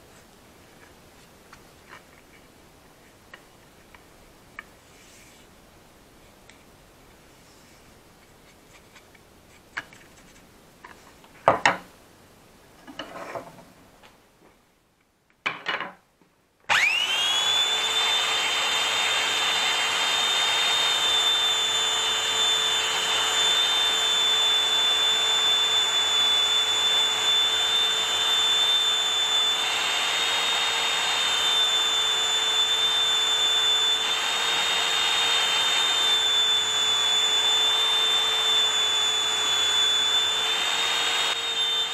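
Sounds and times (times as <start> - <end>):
knocks and handling sounds: 0.1 - 5.5, 6.3 - 11.9, 12.8 - 14.6, 15.3 - 16.4
power tool whining: 16.7 - 41.9.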